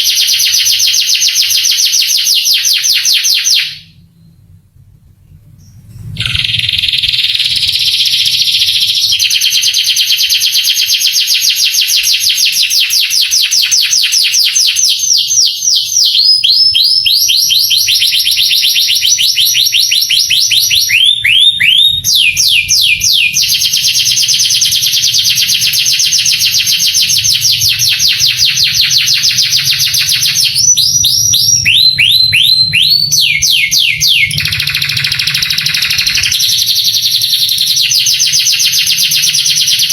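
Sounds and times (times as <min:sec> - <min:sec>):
canary singing trills: 0:05.4 - 0:39.9.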